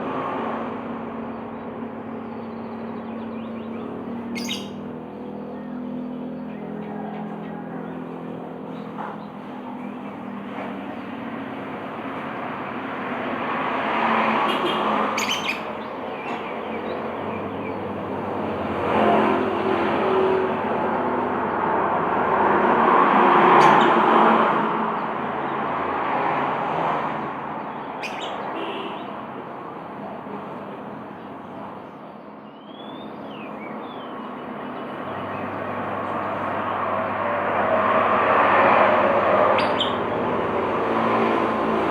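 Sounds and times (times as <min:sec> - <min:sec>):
motor vehicle noise: 0:00.0 - 0:41.9
lovebird chirping: 0:03.4 - 0:04.8, 0:14.6 - 0:17.8, 0:28.0 - 0:28.9, 0:39.6 - 0:40.1
low engine hum: 0:32.9 - 0:41.9.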